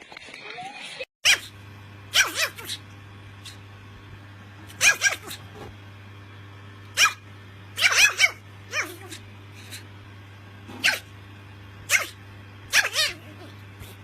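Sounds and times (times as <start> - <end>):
dog barking: 1.2 - 1.5, 2.1 - 2.8, 4.7 - 5.5, 6.9 - 7.2, 7.8 - 9.8, 10.7 - 11.1, 11.8 - 14.0.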